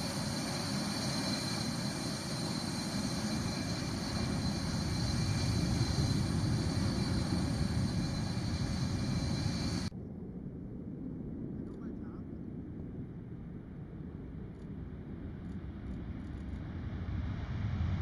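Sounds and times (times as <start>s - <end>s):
jet engines roaring: 0.0s - 9.9s
thin high whine: 0.0s - 9.9s.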